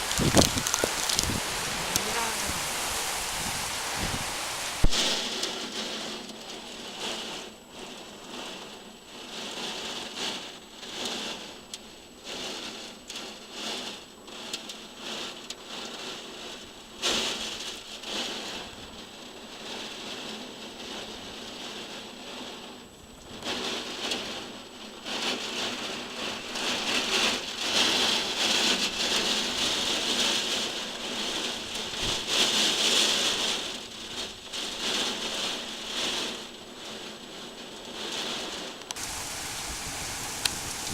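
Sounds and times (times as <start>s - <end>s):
heavy rain falling: 0.0s - 10.2s, 23.4s - 40.9s
raindrops hitting nearby surface: 0.0s - 40.9s.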